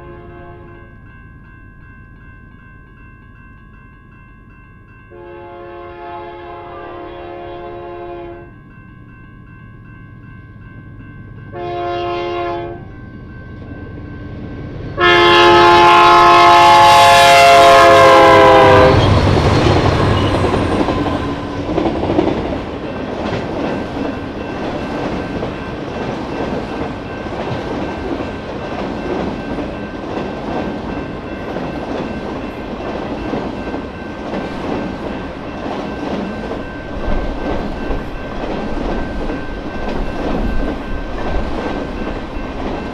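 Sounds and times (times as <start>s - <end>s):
locomotive air horn blasts: 0.0s - 0.9s, 5.1s - 8.6s, 11.5s - 13.0s, 15.0s - 21.6s
train cars rumbling and clattering: 0.0s - 42.9s.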